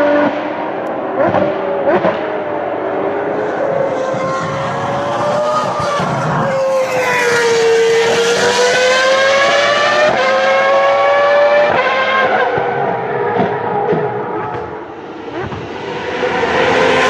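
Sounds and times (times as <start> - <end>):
racing car engine at high revs: 0.0 - 17.0.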